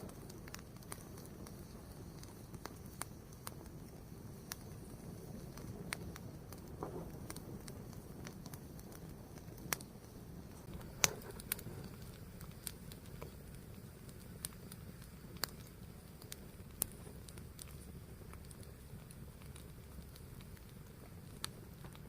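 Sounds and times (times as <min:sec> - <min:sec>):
fire burning with low rumble: 0:00.0 - 0:22.0
fire crackling: 0:00.0 - 0:22.0.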